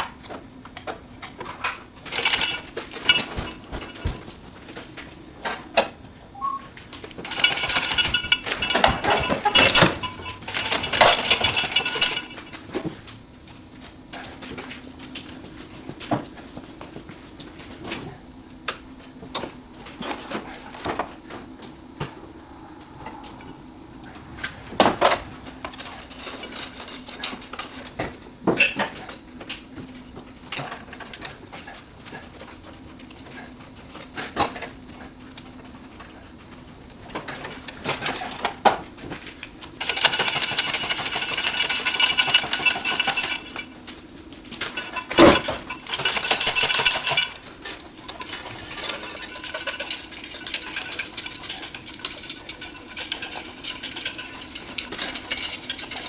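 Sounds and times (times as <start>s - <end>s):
fast mechanical rattling: 7.2s - 13.0s, 39.8s - 43.8s, 44.5s - 56.0s
tools clinking on metal: 44.6s - 56.0s.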